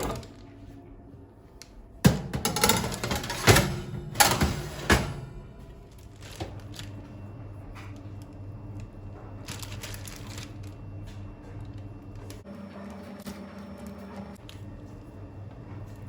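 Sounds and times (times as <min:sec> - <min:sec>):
kitchen rustling and scraping: 0:00.0 - 0:01.2, 0:02.0 - 0:08.4
steady low hum: 0:00.0 - 0:16.0.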